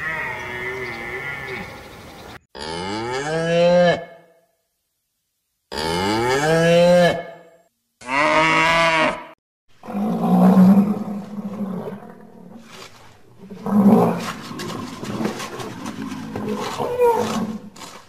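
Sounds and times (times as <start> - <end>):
cow mooing: 0.0 - 1.8, 8.0 - 9.3.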